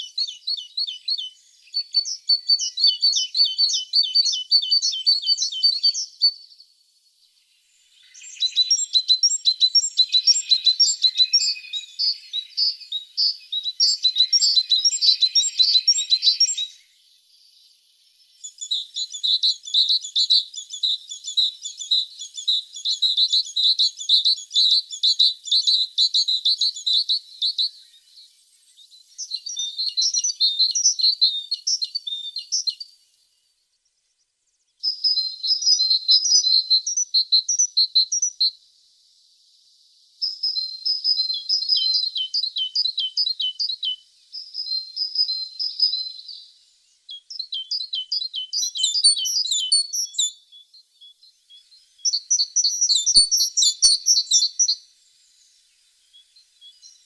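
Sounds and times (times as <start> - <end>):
bird twittering trills: 7.3 - 34.2, 40.2 - 57.0.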